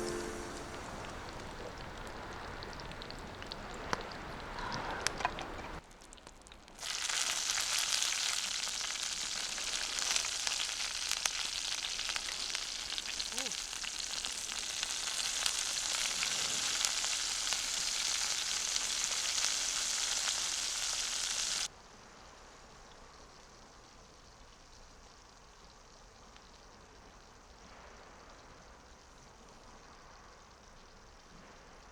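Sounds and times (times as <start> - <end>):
food sizzling in a hot pan: 0.0 - 1.0, 6.8 - 22.4.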